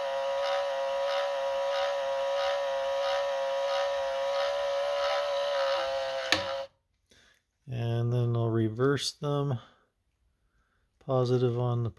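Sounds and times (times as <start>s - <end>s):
electric mirror motor whining: 0.0s - 6.7s.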